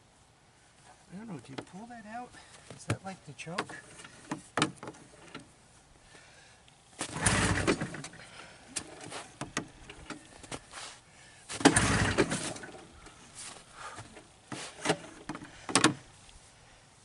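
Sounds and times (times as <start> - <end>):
engine turning over: 7.0 - 10.3, 11.5 - 13.0
recoil starter rope pull: 7.0 - 10.3, 11.5 - 12.9.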